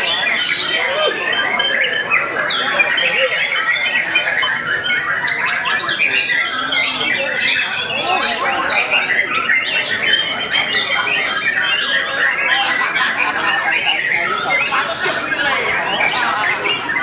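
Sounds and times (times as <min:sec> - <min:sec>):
songbirds singing whistled phrases: 0:00.0 - 0:17.0
harsh bird chattering calls: 0:10.1 - 0:17.0.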